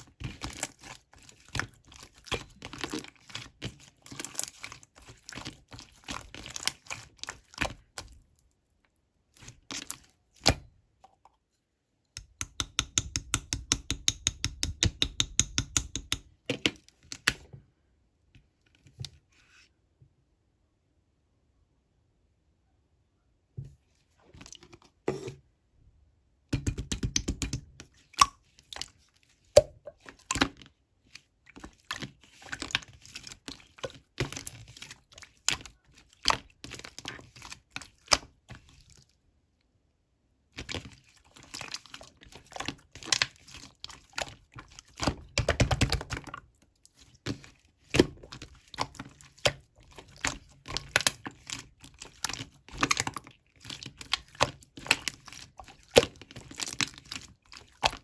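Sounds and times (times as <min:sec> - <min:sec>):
slime squished by hand: 0:40.6 - 0:58.0.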